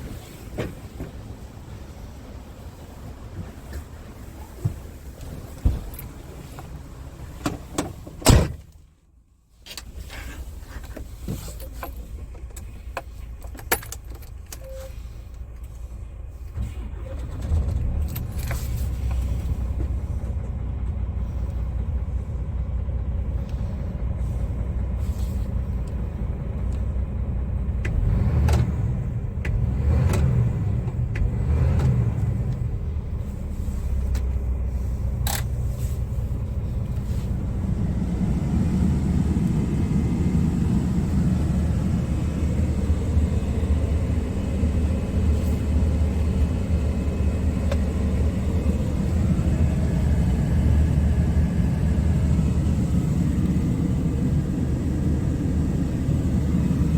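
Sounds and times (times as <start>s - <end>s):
diesel engine running: 14.8s - 56.9s.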